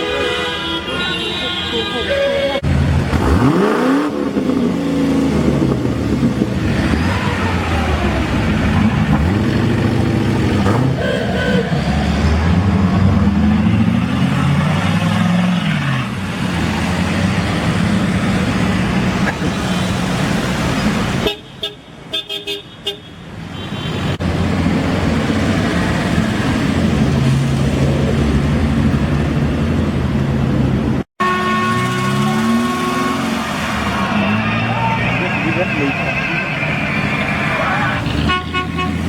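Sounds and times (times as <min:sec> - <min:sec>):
car horn tooting: 0:00.0 - 0:02.6, 0:31.2 - 0:33.5, 0:38.1 - 0:39.0
cars driving past revving: 0:02.6 - 0:21.2, 0:31.6 - 0:39.0.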